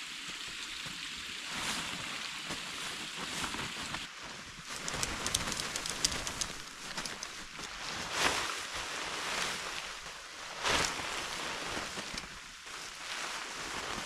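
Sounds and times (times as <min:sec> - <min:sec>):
swishing rustle: 0:01.6 - 0:14.0
creek flowing: 0:04.6 - 0:07.8.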